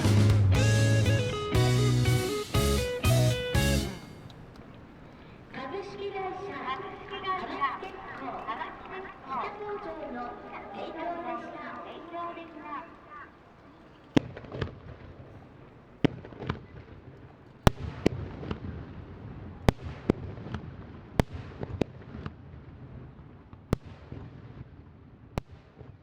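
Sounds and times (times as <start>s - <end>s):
fireworks shells bursting: 3.8s - 16.5s
fireworks crackle: 3.8s - 19.0s.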